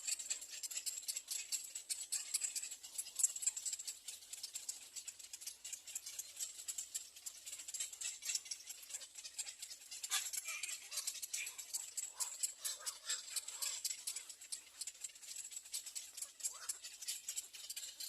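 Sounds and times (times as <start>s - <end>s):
nestlings chattering: 7.5s - 18.0s.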